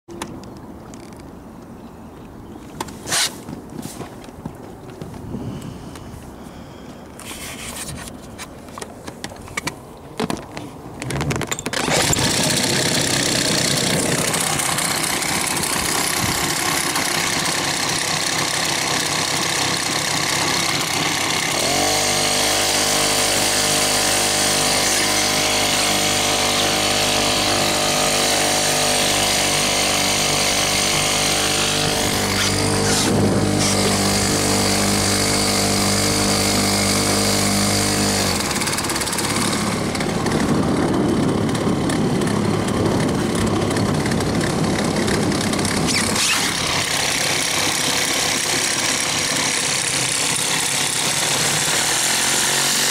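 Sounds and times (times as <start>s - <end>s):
outboard motor running: 11.0s - 52.9s.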